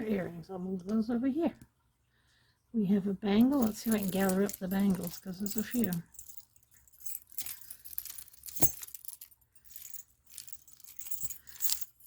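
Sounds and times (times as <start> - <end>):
metal bangles clinking: 3.4 - 12.0.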